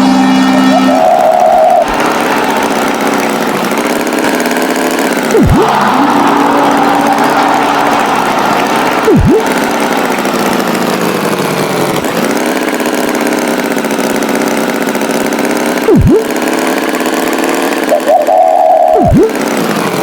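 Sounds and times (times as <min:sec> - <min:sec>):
cartoon tractor engine running: 0:00.0 - 0:20.0
swooping sound effect: 0:00.3 - 0:03.8, 0:05.2 - 0:10.8, 0:15.9 - 0:16.4, 0:18.0 - 0:19.4
short steady tone: 0:05.3 - 0:08.1, 0:09.0 - 0:09.8, 0:15.9 - 0:16.3.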